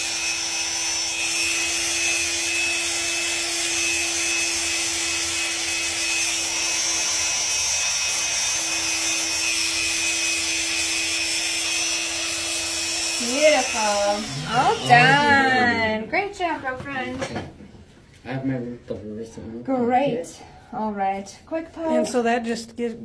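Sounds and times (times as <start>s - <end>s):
rotary tool grinding a toenail: 0.0s - 15.7s.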